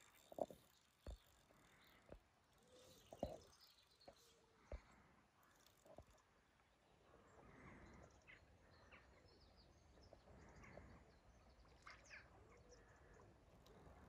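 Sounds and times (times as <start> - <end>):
faint bird chirps: 6.9 - 14.0.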